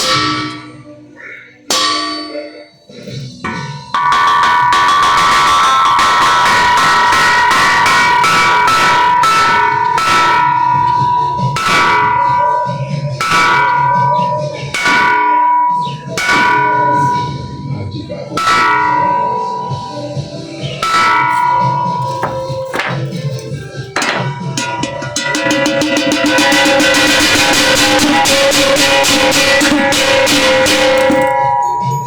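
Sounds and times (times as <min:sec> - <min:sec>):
bells ringing: 0:00.0 - 0:32.0.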